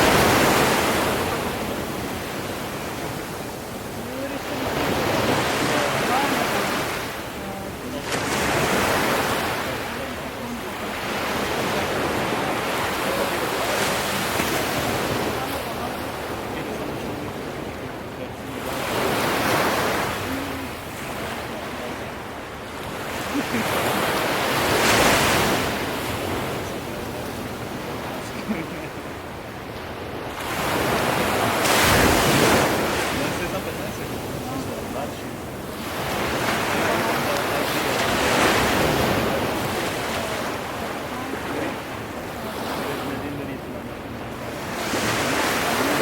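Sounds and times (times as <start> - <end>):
ocean waves washing in: 0.0 - 46.0.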